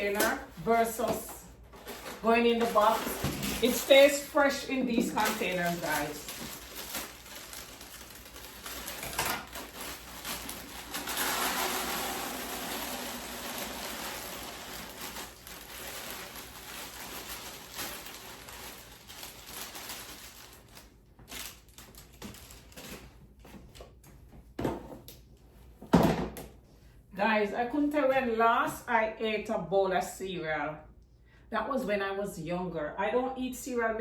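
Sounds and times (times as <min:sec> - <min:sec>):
dry cereal pouring: 0:05.5 - 0:20.6.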